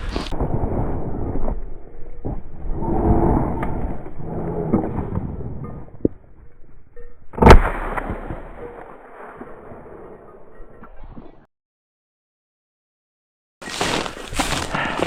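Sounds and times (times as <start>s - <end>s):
rustling and crunching footsteps: 0.0s - 0.4s, 13.6s - 15.0s
shotgun shot: 7.4s - 8.6s.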